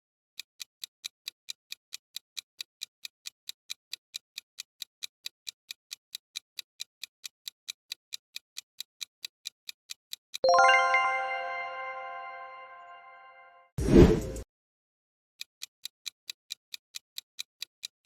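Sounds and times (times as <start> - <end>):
timer ticking: 0.6 - 12.8.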